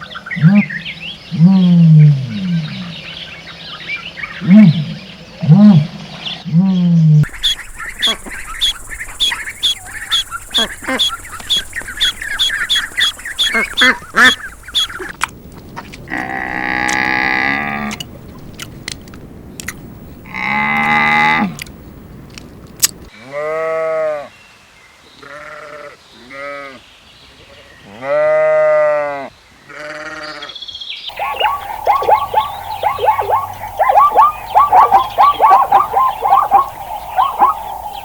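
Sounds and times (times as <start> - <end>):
rapid high bird chirping: 7.2 - 15.1, 31.1 - 38.0
wavering bleats: 7.4 - 15.0, 16.1 - 18.0, 20.3 - 21.6, 31.1 - 38.0.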